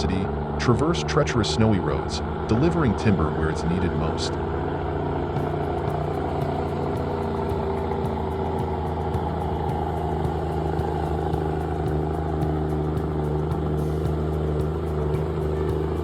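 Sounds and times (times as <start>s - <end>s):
truck diesel engine under load: 0.0s - 16.0s.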